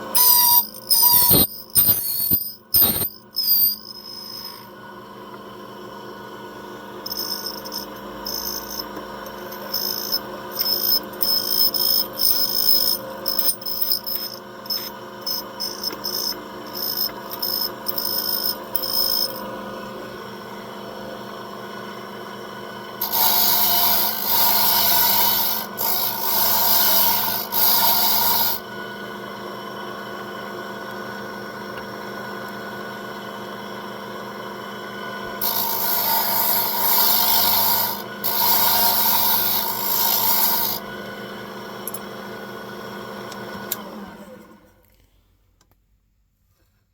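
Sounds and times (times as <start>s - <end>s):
key cutting machine motor hum: 6.3s - 19.9s, 23.0s - 28.6s, 35.4s - 42.3s
cutter cutting key blank: 23.0s - 28.6s.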